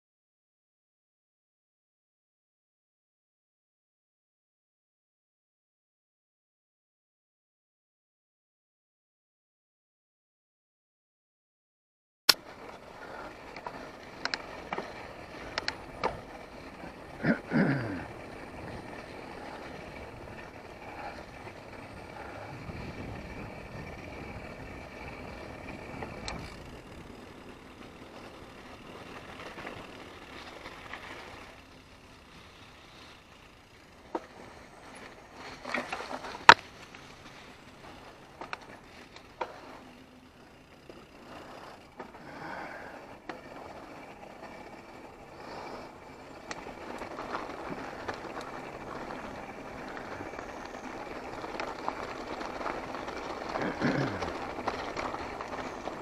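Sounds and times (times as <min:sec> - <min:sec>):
bike rattles and clicks: 0:12.3 - 0:56.0
bike tyres on dirt trail: 0:12.3 - 0:56.0.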